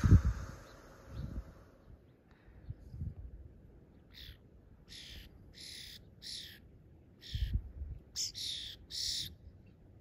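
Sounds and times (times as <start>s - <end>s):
bird harsh calls: 4.0s - 9.4s.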